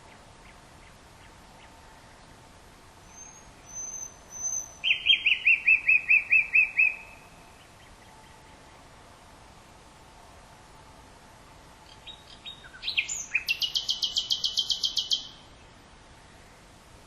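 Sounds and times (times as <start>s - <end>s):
nightingale singing: 3.0s - 8.8s, 11.8s - 15.8s.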